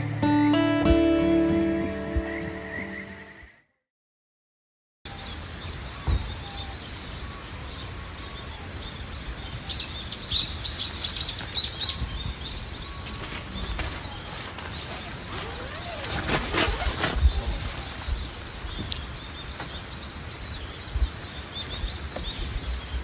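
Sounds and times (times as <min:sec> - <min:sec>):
small birds chirping: 0:05.1 - 0:23.0.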